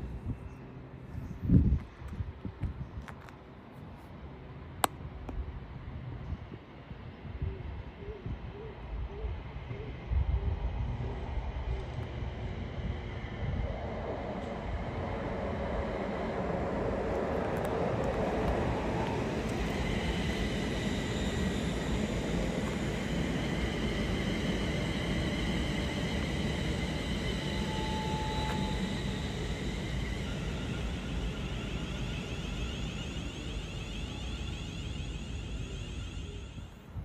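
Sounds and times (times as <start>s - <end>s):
train wheels rumbling on rails: 9.5s - 37.0s
faint high steady tones: 19.9s - 36.8s.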